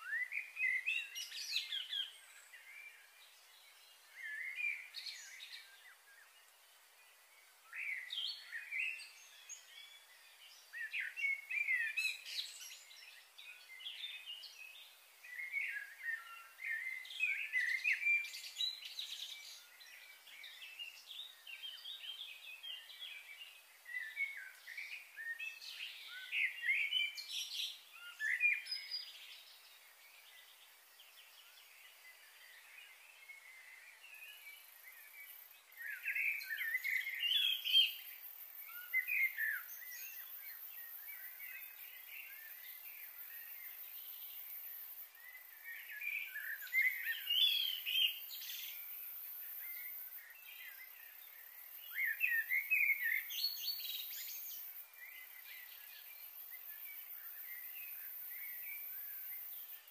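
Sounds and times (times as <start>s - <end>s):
faint steady hiss: 0.0s - 59.9s
small birds chirping: 0.0s - 59.9s.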